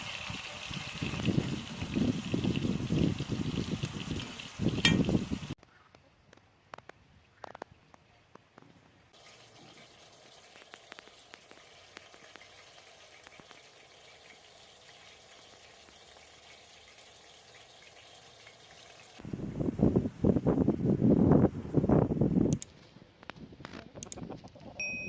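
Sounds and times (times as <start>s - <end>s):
food sizzling in hot oil: 0.0s - 5.6s, 9.2s - 19.2s
oil popping and spitting: 9.2s - 13.8s.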